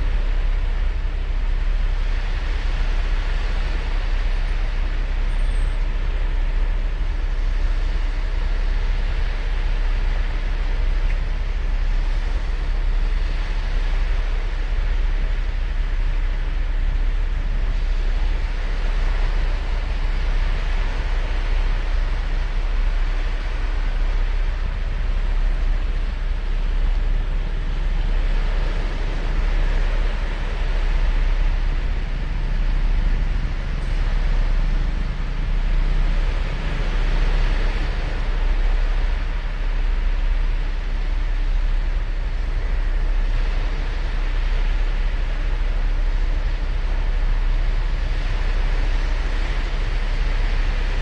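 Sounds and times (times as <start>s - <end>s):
deep low rumble: 0.0s - 51.0s
ocean waves breaking: 11.5s - 51.0s.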